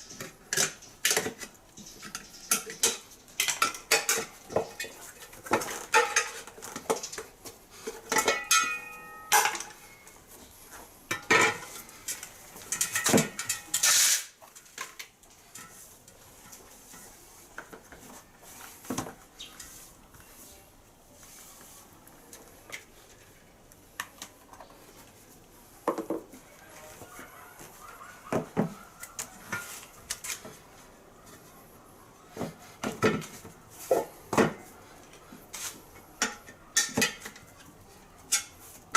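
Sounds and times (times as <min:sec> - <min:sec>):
metal tools clinking and clattering: 0:07.9 - 0:10.2, 0:11.1 - 0:15.8.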